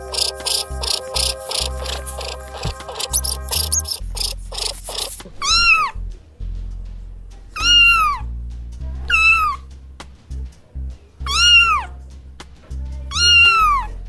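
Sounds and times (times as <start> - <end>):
children's song with bass: 0.0 - 14.0.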